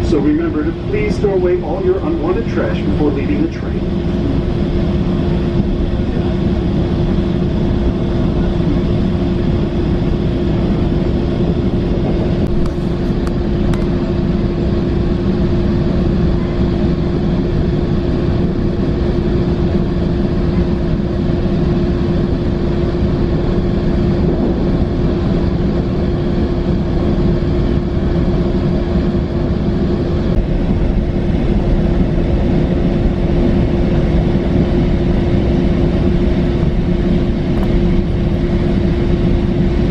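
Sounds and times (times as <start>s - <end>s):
constant hum: 0.0s - 39.9s
train rumble inside coach: 0.0s - 39.9s.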